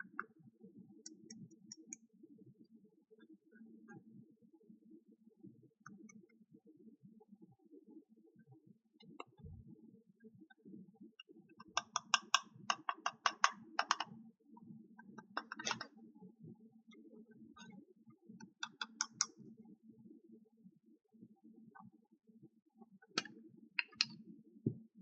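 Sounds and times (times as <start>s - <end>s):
plastic toy pieces clicking: 11.8s - 14.1s.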